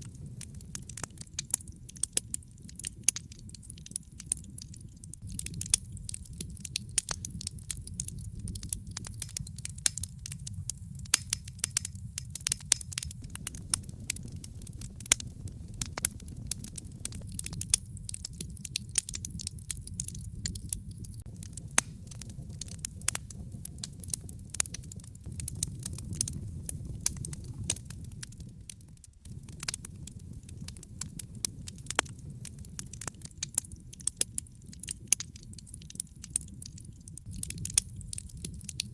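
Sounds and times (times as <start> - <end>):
fire crackling and popping: 0.0 - 38.9
low steady rumble: 4.9 - 33.2, 37.2 - 38.9.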